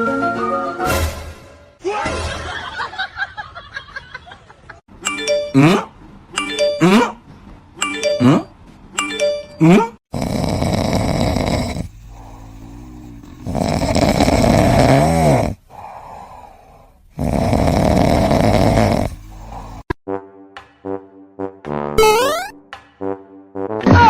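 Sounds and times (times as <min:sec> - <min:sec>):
chiming sound effect notes: 0:05.0 - 0:05.6
pet snoring loudly: 0:10.1 - 0:20.0
quiet breaths: 0:10.5 - 0:14.6, 0:15.5 - 0:20.0.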